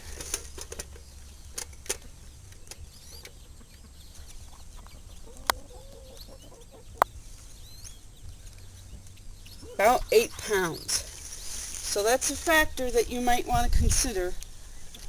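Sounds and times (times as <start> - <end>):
faint birds chirping: 0.0 - 15.0
hen clucking: 0.0 - 15.0
sharp clicks: 0.1 - 3.4.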